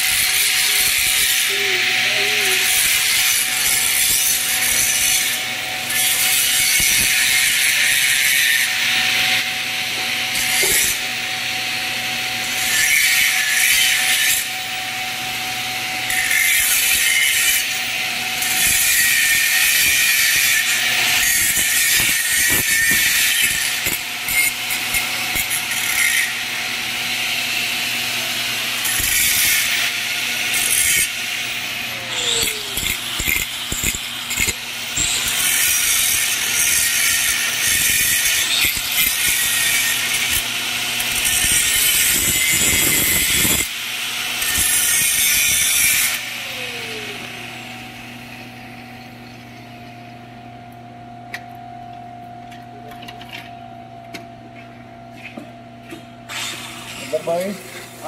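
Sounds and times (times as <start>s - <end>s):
welding arc crackling and hissing: 0.0s - 9.4s, 10.2s - 11.1s, 16.0s - 48.4s.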